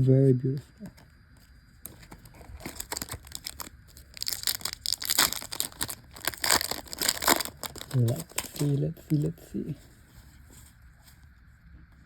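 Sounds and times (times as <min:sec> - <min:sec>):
foil wrapper crinkling and tearing: 0:01.8 - 0:09.3.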